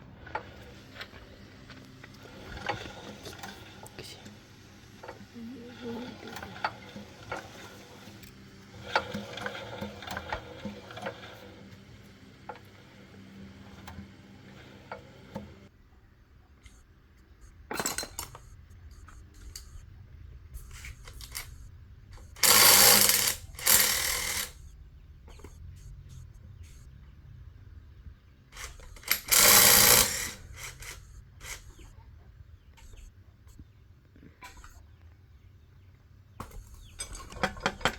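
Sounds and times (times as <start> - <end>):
metal tools clinking: 22.3 - 24.6, 28.6 - 31.7.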